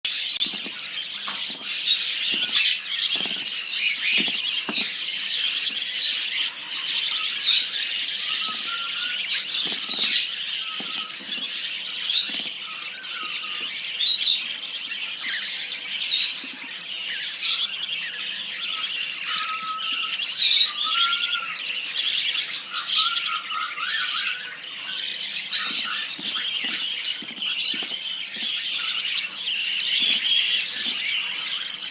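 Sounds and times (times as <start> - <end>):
nestlings cheeping: 0.2 - 13.9, 24.1 - 31.9.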